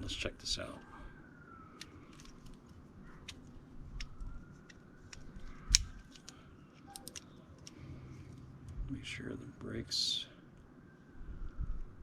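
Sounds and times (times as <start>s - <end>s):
sharp snap: 5.1s - 6.4s.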